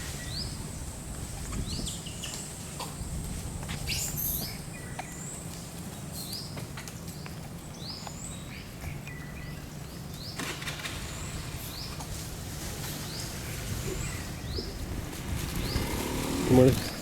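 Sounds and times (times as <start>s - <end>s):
birds chirping: 6.1s - 17.0s.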